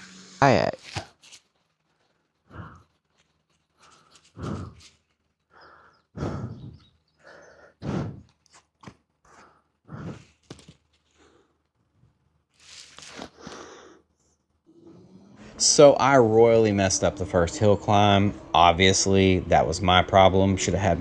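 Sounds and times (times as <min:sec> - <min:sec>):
person breathing heavily: 0:02.5 - 0:02.9, 0:03.8 - 0:04.9, 0:05.5 - 0:08.4, 0:09.3 - 0:10.5, 0:13.3 - 0:14.1.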